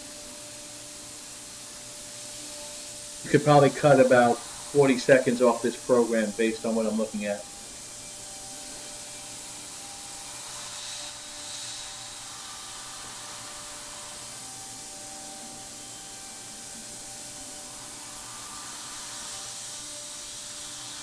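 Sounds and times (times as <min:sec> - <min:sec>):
cnc router hiss and hum: 0:00.0 - 0:21.0.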